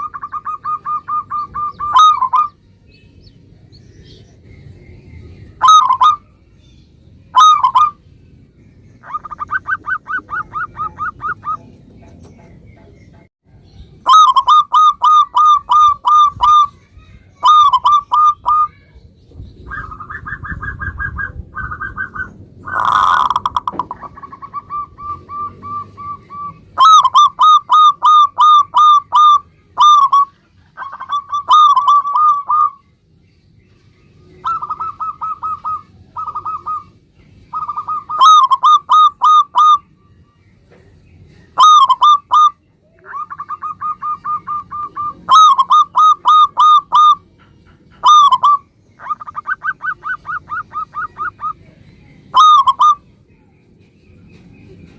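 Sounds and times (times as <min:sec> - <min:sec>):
doves cooing: 0:00.0 - 0:02.6, 0:05.6 - 0:06.3, 0:07.3 - 0:08.0, 0:09.0 - 0:12.9, 0:14.0 - 0:16.8, 0:17.4 - 0:18.7, 0:19.6 - 0:32.8, 0:34.2 - 0:39.8, 0:41.5 - 0:53.0.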